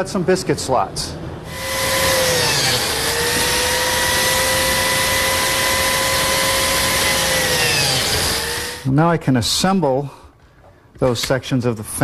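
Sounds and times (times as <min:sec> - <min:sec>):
biscuit joiner motor whine: 0:01.5 - 0:08.9.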